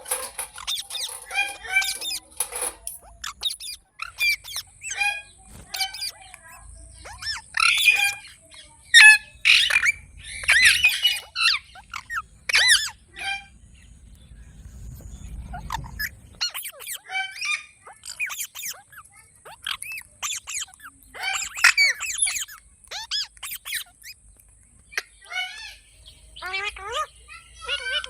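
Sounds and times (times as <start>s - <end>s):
parrot squawking: 0.0s - 8.3s, 19.5s - 24.2s, 26.4s - 28.0s
parrot chirping and screeching: 0.0s - 13.5s, 15.5s - 24.2s, 26.4s - 28.0s.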